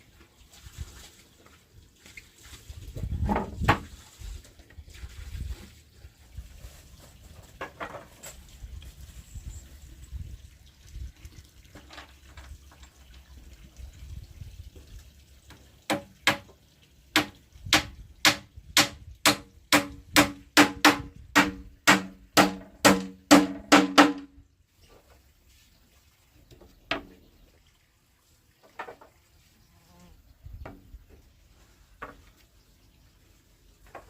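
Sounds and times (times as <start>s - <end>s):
hammer striking wood: 15.9s - 16.5s, 17.2s - 24.4s.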